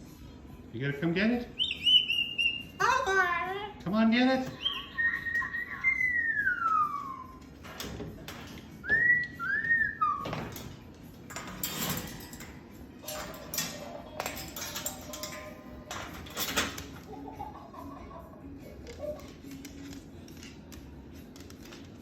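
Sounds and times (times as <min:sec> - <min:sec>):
person whistling: 0:08.8 - 0:10.2.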